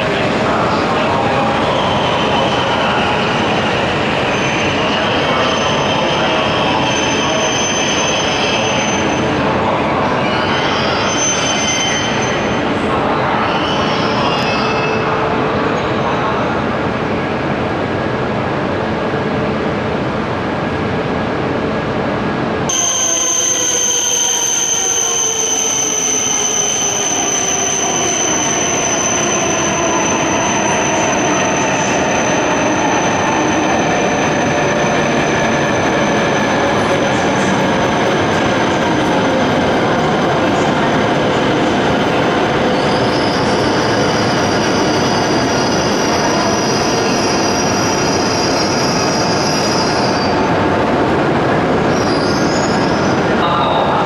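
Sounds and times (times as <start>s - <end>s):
high squeal: 1.6s - 9.4s, 10.2s - 12.7s, 22.7s - 50.5s, 51.9s - 54.0s
bullet train rumble: 14.0s - 54.0s.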